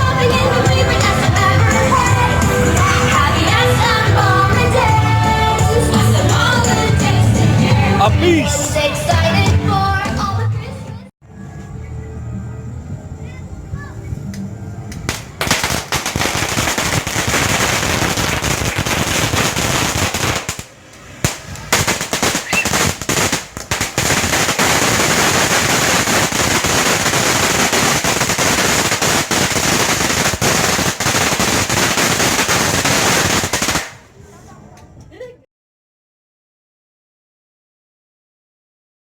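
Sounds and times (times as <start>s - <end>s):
fireworks crackling: 14.3s - 34.2s.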